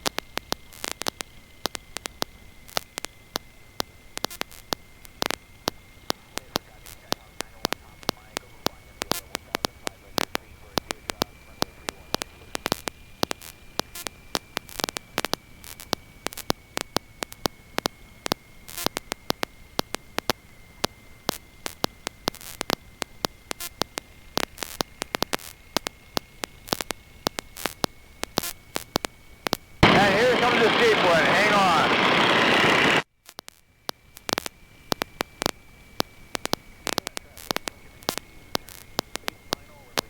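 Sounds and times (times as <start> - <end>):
crackling electrical static: 0.0 - 40.0
faint hiss: 0.0 - 40.0
high-pitched whine: 29.8 - 33.0.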